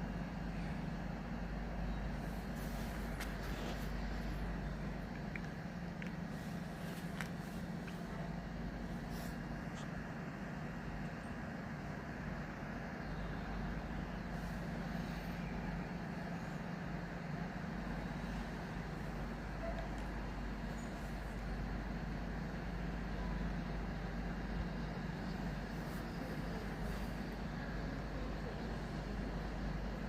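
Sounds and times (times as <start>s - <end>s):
diesel train engine drone: 0.0s - 30.0s.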